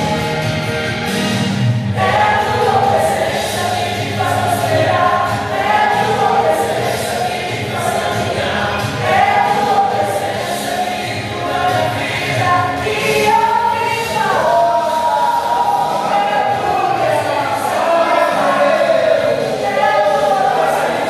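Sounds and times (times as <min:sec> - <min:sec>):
choir singing a hymn: 0:02.0 - 0:21.0.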